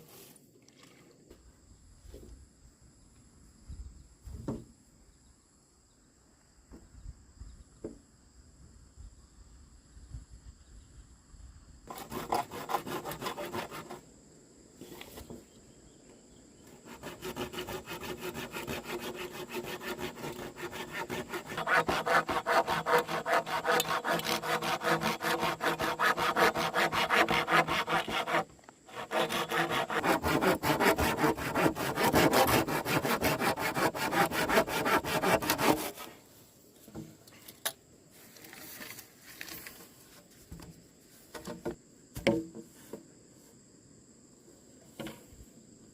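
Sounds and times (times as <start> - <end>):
saw cutting through wood: 11.9 - 14.0, 16.8 - 36.1.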